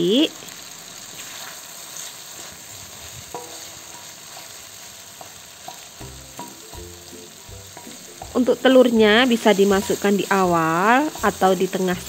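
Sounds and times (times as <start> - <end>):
food sizzling in a wok: 0.0 - 12.0
wooden spatula stirring: 1.0 - 12.0
spatula tapping metal wok: 3.2 - 12.0.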